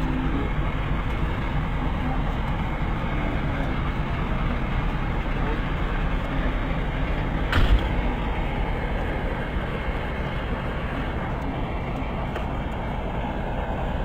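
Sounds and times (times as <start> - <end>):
rushing storm wind: 0.0 - 14.0
short thump: 7.5 - 8.3.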